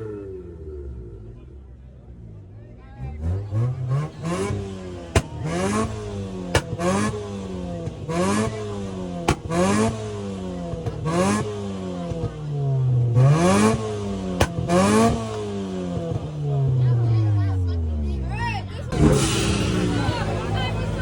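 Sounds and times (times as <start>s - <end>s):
turbocharged car engine revving: 0.0s - 21.0s.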